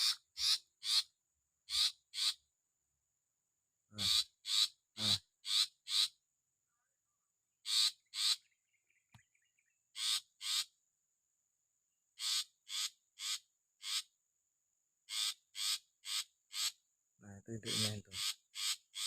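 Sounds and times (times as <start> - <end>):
bird harsh scolding calls: 0.0 - 1.1, 1.7 - 2.4, 4.0 - 6.2, 7.6 - 8.6, 9.9 - 10.7, 12.2 - 14.1, 15.1 - 16.8, 17.7 - 19.0.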